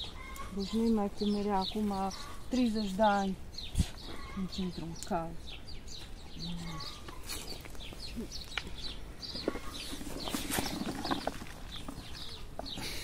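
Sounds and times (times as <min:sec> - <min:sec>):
birds chirping: 0:00.0 - 0:13.0
rustle: 0:05.8 - 0:13.0.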